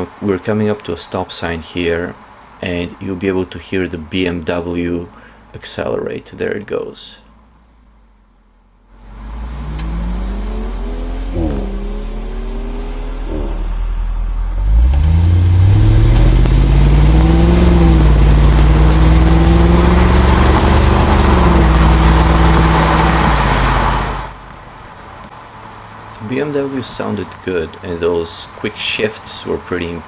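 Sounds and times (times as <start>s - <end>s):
car accelerating with upshifts: 6.4s - 30.0s
deep engine exhaust pulling away: 7.1s - 30.0s.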